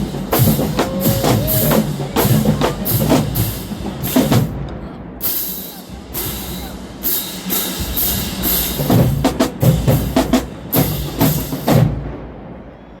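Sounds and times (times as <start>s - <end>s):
cymbal crashes: 5.2s - 12.3s.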